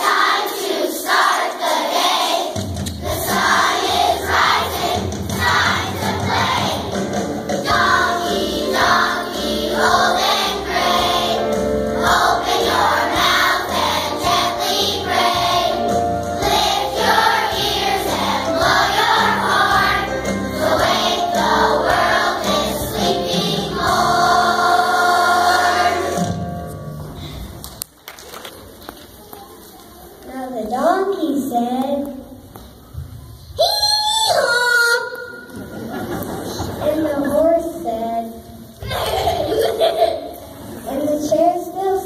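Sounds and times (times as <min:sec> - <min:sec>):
children's choir singing: 0:00.0 - 0:26.6
musical accompaniment: 0:02.5 - 0:28.0.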